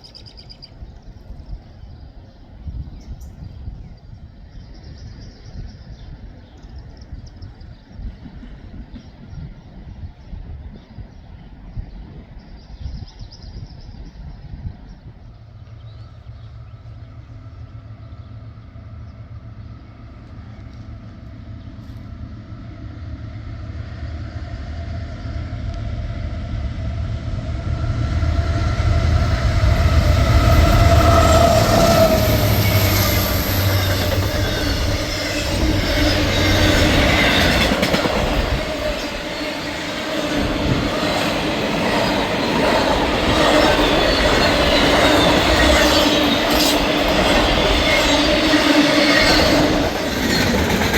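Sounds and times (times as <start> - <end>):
train wheels clattering on rails: 28.2 - 50.9.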